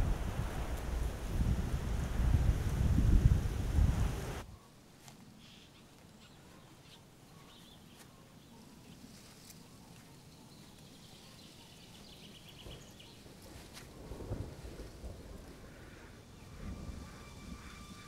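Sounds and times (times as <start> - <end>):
faint bird chirps: 5.4 - 13.2
rapid bird trill: 16.3 - 18.0.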